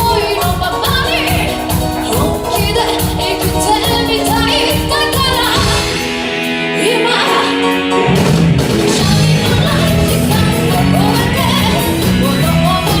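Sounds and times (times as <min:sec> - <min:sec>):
live rock band playing: 0:00.0 - 0:13.0
person singing: 0:06.7 - 0:07.9, 0:08.8 - 0:13.0.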